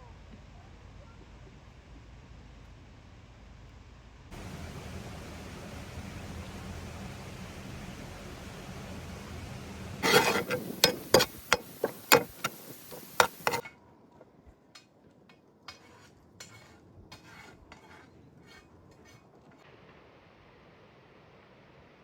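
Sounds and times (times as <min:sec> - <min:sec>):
utensils clinking on cookware: 0:10.0 - 0:13.6.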